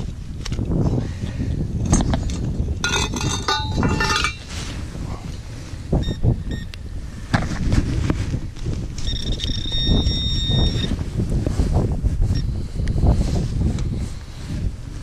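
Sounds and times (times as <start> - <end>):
wind on microphone: 0.0 - 15.0
metal detector beeps: 6.0 - 6.7, 9.0 - 11.0.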